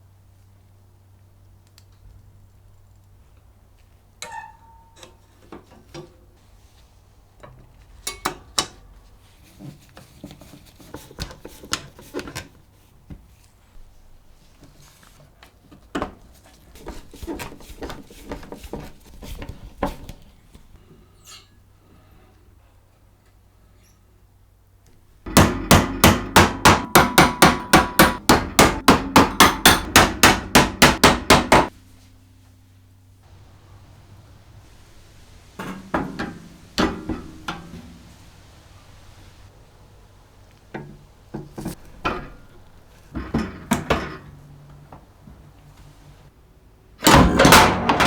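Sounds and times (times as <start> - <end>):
hammer strikes ringing: 25.3 - 31.7.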